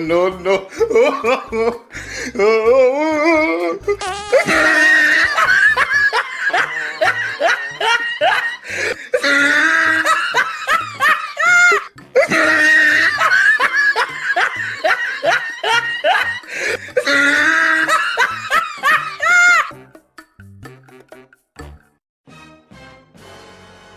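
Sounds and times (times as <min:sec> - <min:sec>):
hearty laughter: 0:04.5 - 0:19.7.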